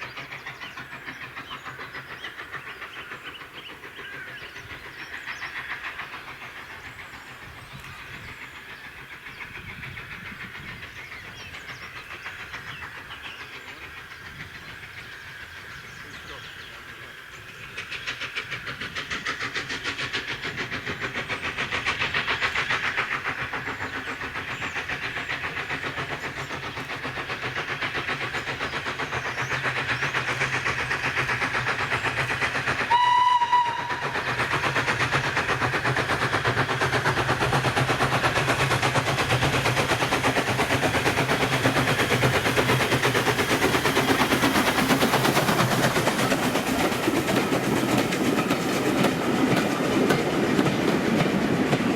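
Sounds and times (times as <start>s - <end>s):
steam locomotive working: 0.0s - 51.9s
steam whistle blast: 32.9s - 34.2s.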